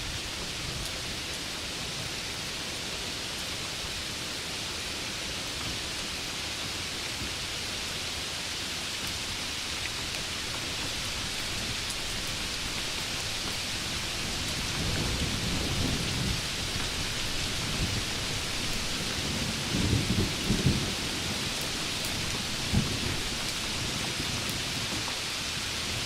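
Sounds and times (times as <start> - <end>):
heavy rain: 0.0 - 26.0
thunder rumbling: 10.2 - 24.4.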